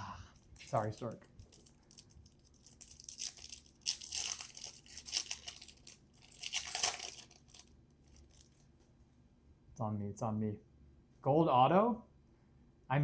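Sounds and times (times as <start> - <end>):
card pack wrapper tearing: 0.6 - 8.6.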